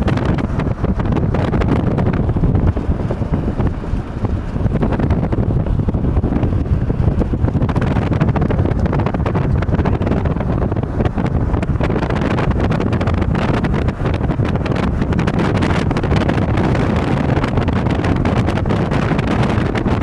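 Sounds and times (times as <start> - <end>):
car driving rumble: 0.0 - 20.0
wind buffeting microphone: 0.0 - 20.0.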